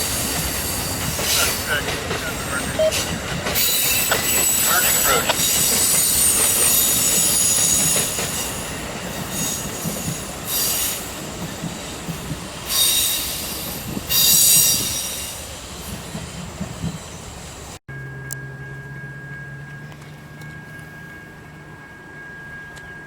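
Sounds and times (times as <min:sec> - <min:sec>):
train wheels squealing on rails: 0:00.0 - 0:17.8.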